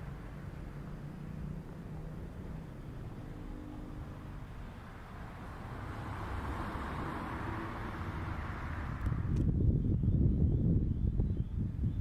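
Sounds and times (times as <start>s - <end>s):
car approaching: 0.0s - 9.6s
low street hum: 0.0s - 12.0s.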